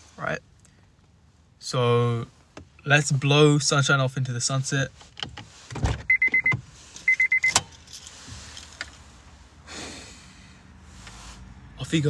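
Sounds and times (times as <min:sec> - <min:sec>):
high electronic beeps: 0:06.1 - 0:07.6
short puff of breath: 0:09.6 - 0:11.4.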